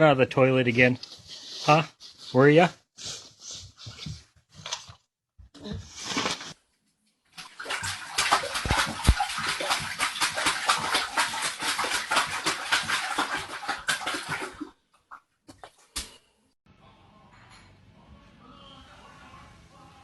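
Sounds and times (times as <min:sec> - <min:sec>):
dog lapping water: 0:07.4 - 0:14.7.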